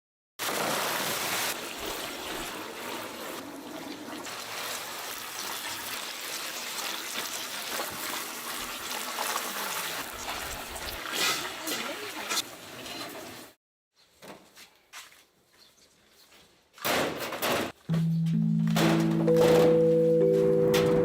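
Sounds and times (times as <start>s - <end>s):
hot oil sizzling and crackling: 0.4s - 13.6s.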